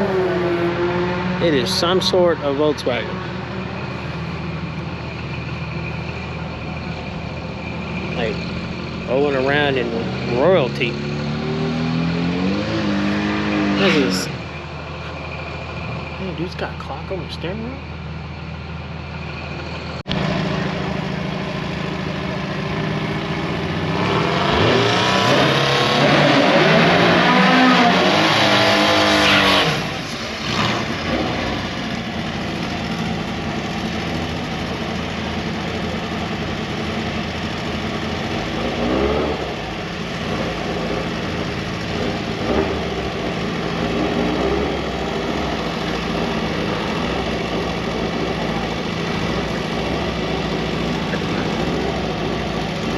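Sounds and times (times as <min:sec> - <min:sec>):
engine revving and accelerating: 0:00.0 - 0:03.5, 0:09.1 - 0:14.4, 0:22.6 - 0:34.8, 0:36.0 - 0:52.9
car engines running: 0:00.0 - 0:52.9.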